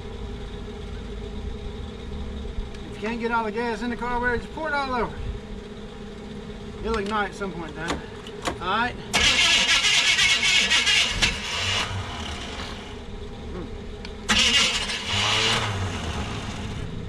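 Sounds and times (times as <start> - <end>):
starter motor cranking engine: 6.9 - 13.0, 14.0 - 16.9.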